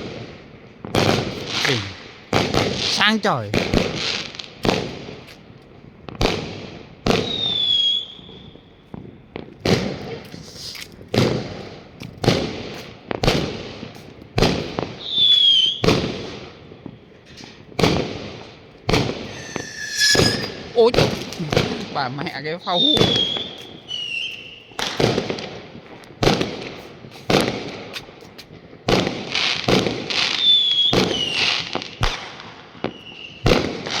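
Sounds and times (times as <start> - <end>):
fireworks whistles: 7.1 - 8.6, 15.0 - 15.9, 18.9 - 22.0, 22.7 - 24.8, 30.3 - 31.6, 32.8 - 33.4.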